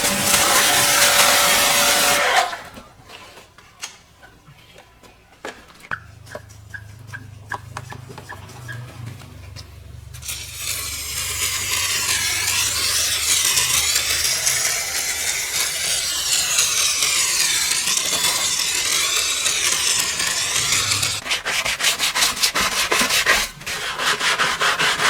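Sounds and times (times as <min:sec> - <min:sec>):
loud scrubbing: 0:00.0 - 0:02.9, 0:10.2 - 0:25.0.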